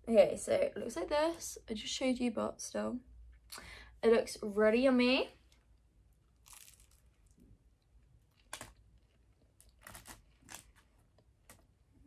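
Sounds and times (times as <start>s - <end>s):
soft crunches: 5.5s - 7.5s, 8.2s - 11.8s
chewing pastry: 6.1s - 11.6s.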